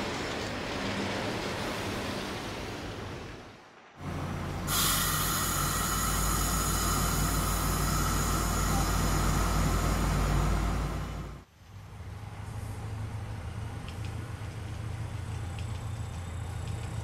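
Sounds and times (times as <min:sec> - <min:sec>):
train rolling rumble: 0:00.0 - 0:11.5.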